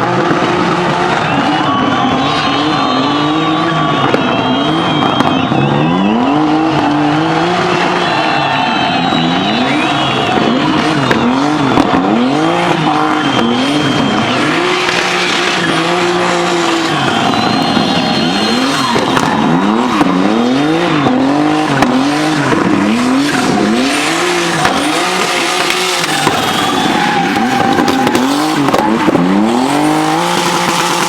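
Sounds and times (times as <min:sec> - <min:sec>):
turbocharged engine revving: 0:00.0 - 0:31.0
tyres squealing: 0:23.1 - 0:31.0.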